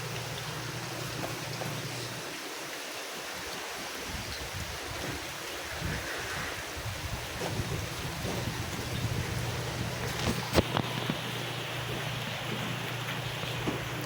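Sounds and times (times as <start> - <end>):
rushing water: 0.0 - 14.0
storm wind: 3.9 - 11.1
wind buffeting microphone: 3.9 - 12.8.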